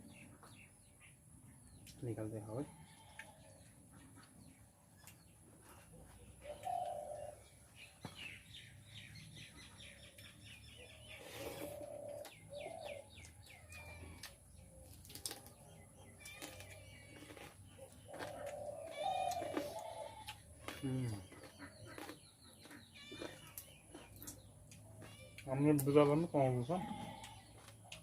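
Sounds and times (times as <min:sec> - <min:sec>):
lower bird calls: 0:16.1 - 0:28.0.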